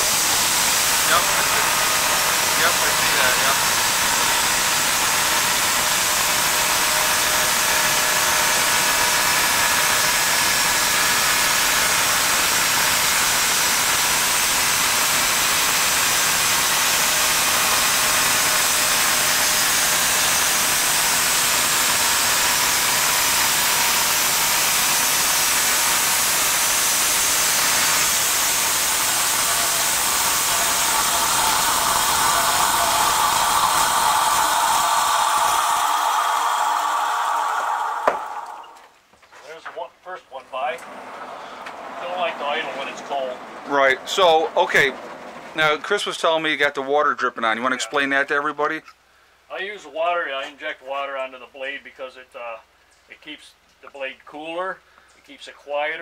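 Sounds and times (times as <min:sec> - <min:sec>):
band sawmill cutting log: 0:00.0 - 0:38.9
sawmill engine running: 0:00.0 - 0:38.9.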